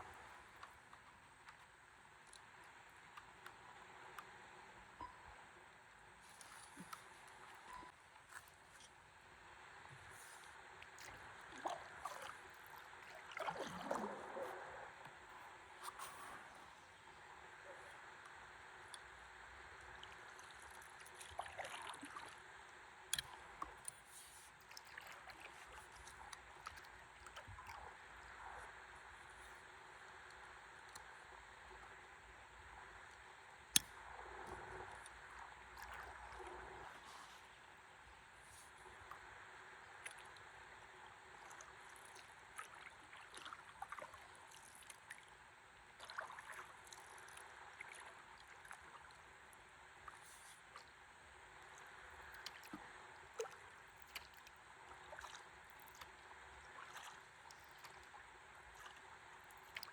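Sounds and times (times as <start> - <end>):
water lapping and trickling: 0.0 - 59.9
soft splashing and dripping: 6.2 - 9.0, 10.0 - 16.9, 19.8 - 22.4, 23.1 - 28.6, 33.0 - 39.2, 40.0 - 40.5, 41.4 - 45.4, 46.0 - 49.3, 51.6 - 59.9.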